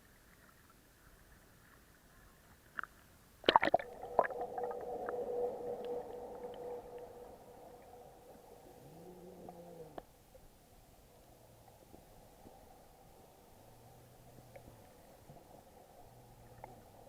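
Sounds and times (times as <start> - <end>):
knocks and splashing water: 3.5 - 4.4
muffled underwater drone: 3.5 - 10.1, 11.2 - 17.0.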